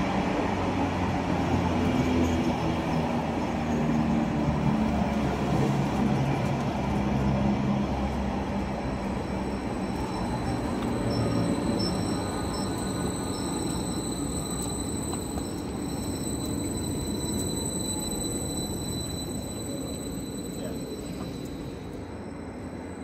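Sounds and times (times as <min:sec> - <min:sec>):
train wheels rumbling: 0:00.0 - 0:22.9
high-pitched squeal: 0:09.2 - 0:23.0.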